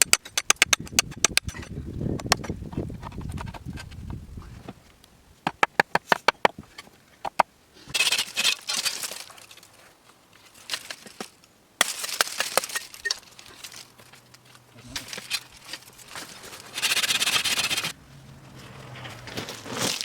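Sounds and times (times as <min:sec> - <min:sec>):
scraping and rustling: 0:07.8 - 0:20.0.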